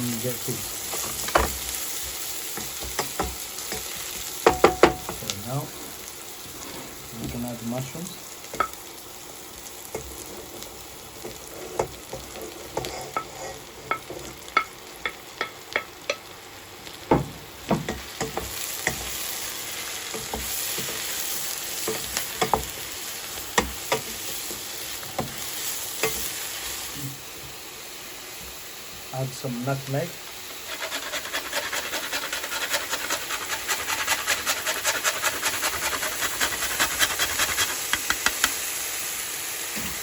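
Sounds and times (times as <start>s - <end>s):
mushrooms sizzling in a pan: 0.0s - 40.0s
utensil knocking against pan: 4.4s - 5.2s, 37.9s - 38.6s.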